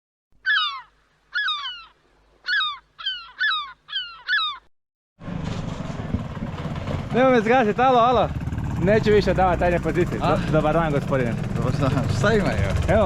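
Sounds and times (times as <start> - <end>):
bird calls sliding down in pitch: 0.4 - 4.7.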